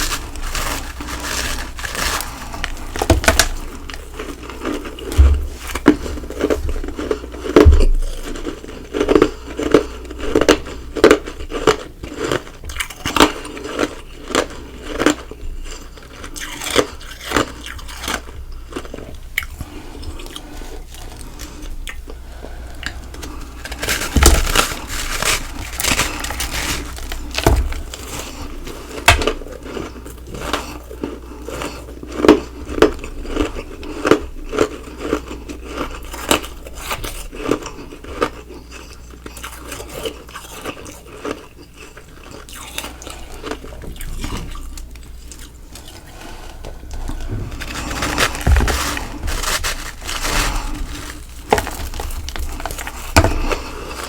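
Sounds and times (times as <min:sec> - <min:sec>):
ice being crunched by teeth: 0:00.0 - 0:19.0, 0:22.8 - 0:30.7.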